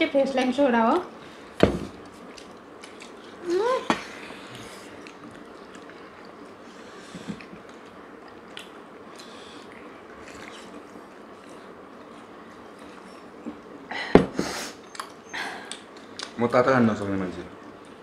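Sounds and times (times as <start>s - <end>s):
chewing and wet mouth sounds: 2.0s - 3.4s, 4.5s - 6.8s, 7.4s - 13.7s.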